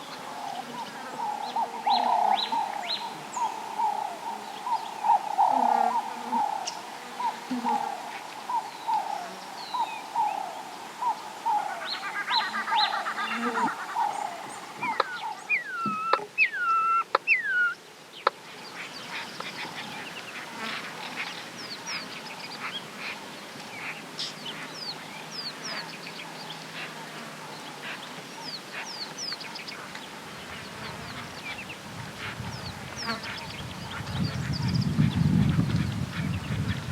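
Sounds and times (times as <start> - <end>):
chorus of high bird chirps: 0.0 - 27.0
birds short repeated calls: 0.8 - 36.9.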